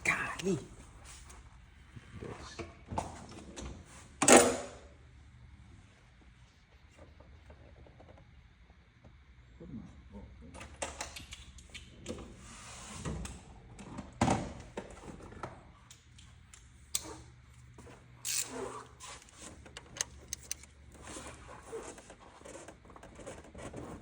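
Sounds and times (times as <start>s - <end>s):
tools and metal parts clinking: 18.2s - 20.7s.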